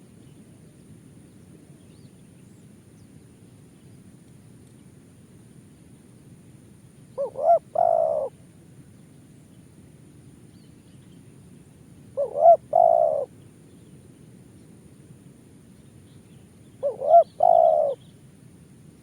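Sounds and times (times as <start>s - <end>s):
dove cooing: 7.2s - 8.4s, 12.2s - 13.3s, 16.8s - 18.0s.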